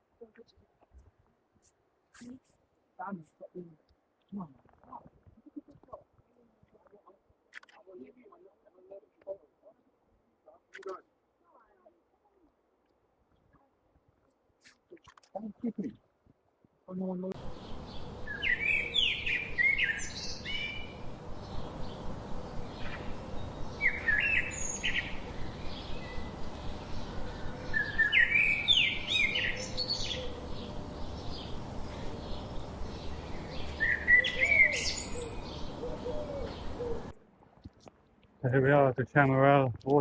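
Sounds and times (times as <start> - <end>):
steady background hiss: 17.1 - 40.0
songbirds chirping and warbling: 17.4 - 37.2.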